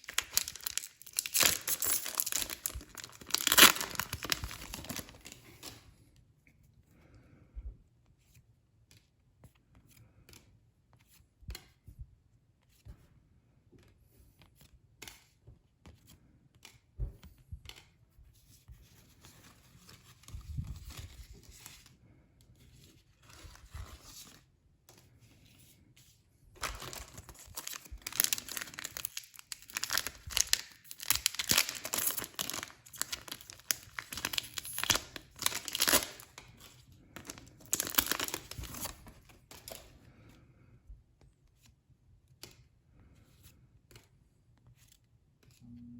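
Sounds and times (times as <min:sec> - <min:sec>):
foil wrapper crinkling and tearing: 0:00.0 - 0:05.4, 0:26.6 - 0:39.8
packaging taps and rustles: 0:00.0 - 0:05.8, 0:26.6 - 0:39.9.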